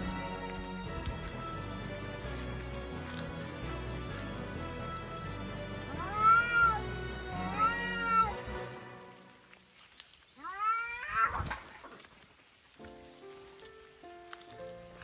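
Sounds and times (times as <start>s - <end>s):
background music: 0.0s - 9.6s
cat meowing: 5.9s - 8.4s, 10.4s - 11.5s.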